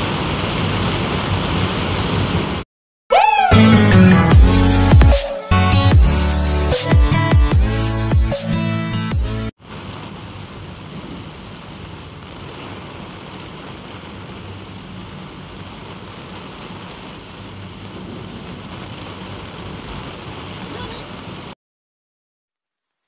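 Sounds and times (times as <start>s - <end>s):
heavy rain on a car: 0.0s - 2.6s, 9.6s - 21.6s
tyres rumbling on wet road: 0.0s - 2.6s, 9.6s - 21.6s.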